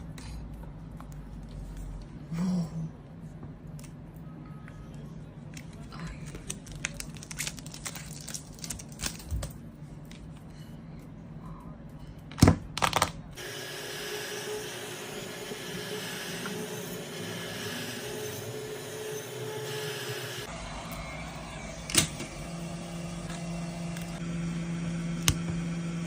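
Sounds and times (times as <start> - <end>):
machine hum: 13.3 - 26.0.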